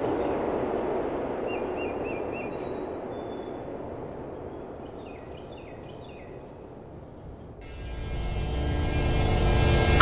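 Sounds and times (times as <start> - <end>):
outdoor background noise: 0.0 - 7.7
bird chirping: 1.4 - 7.6.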